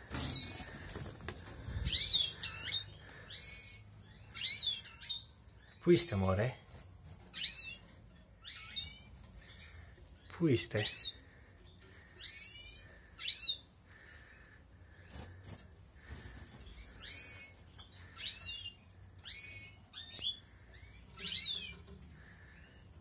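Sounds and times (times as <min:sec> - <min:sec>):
goldfinch chirping: 0:01.7 - 0:06.4, 0:16.7 - 0:22.9.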